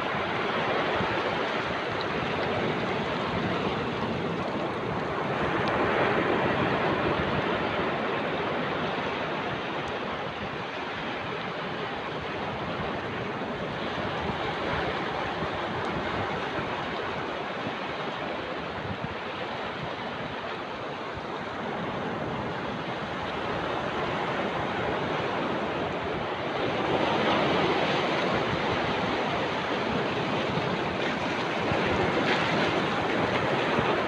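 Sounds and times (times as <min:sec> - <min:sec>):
rushing water: 0:00.0 - 0:34.0.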